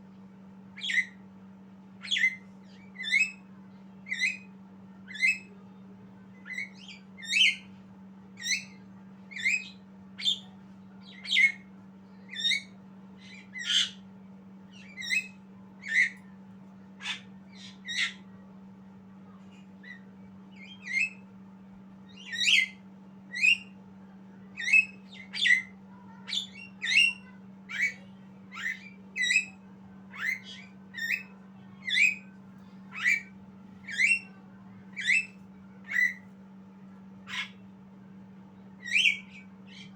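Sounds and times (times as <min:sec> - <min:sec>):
bird squawking: 0:00.8 - 0:01.2, 0:02.0 - 0:03.4, 0:08.4 - 0:11.6, 0:12.3 - 0:14.0, 0:14.8 - 0:16.2, 0:17.0 - 0:18.2, 0:22.2 - 0:22.8, 0:26.3 - 0:32.3, 0:32.9 - 0:36.2, 0:37.3 - 0:37.6, 0:38.8 - 0:39.9.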